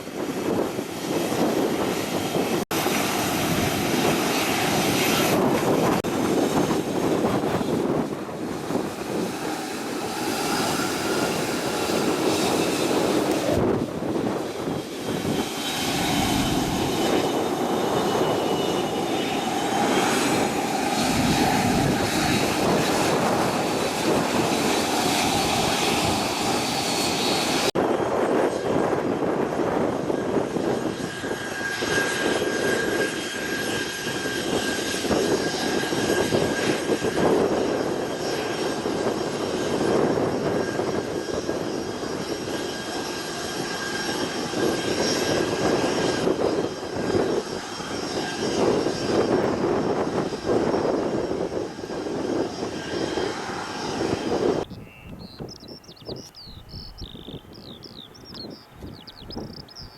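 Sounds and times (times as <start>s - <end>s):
aircraft turbine engine whine: 0.0s - 59.9s.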